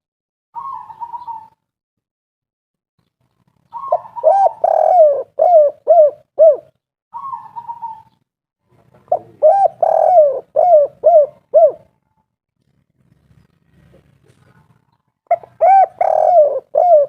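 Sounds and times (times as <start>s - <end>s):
dove cooing song: 0.6s - 1.6s, 3.6s - 8.2s, 8.8s - 12.0s, 13.7s - 17.0s.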